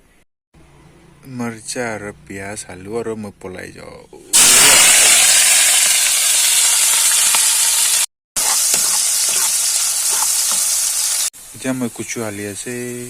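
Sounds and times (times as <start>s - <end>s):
onions sizzling in hot oil: 4.3s - 13.0s.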